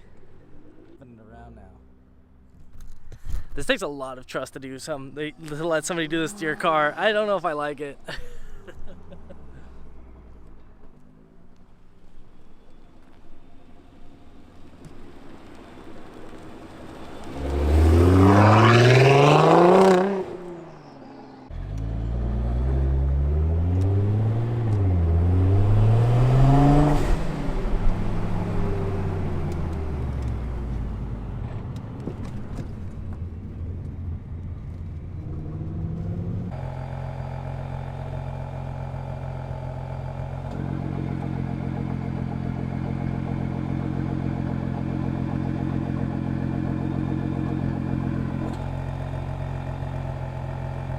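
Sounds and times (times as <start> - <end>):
exhaust cracks: 0.0 - 50.9
car engine revving hard: 17.2 - 30.0.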